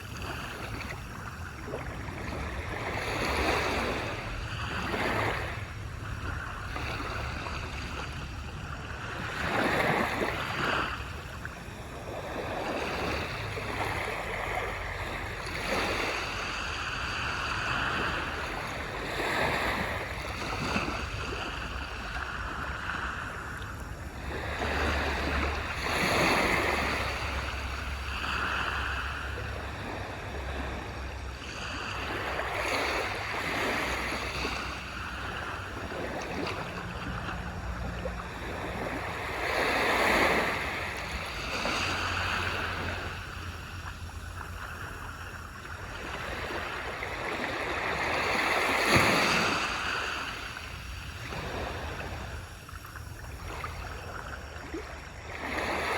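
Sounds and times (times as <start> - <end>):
waves washing onto shore: 0.0 - 55.9.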